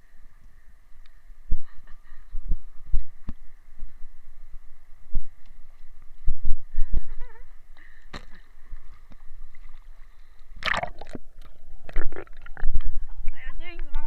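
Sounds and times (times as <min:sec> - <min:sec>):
water splashing in a river: 0:09.2 - 0:12.8.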